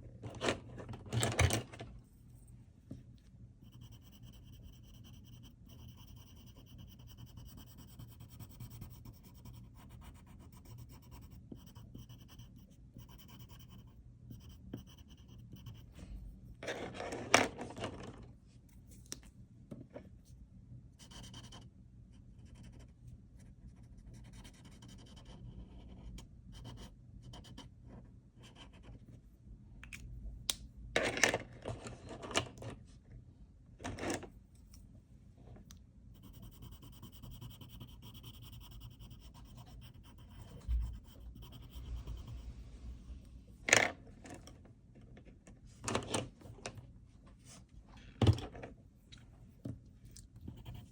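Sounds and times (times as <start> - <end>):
pen scratching on paper: 3.6 - 16.0, 36.2 - 42.6, 50.5 - 50.9.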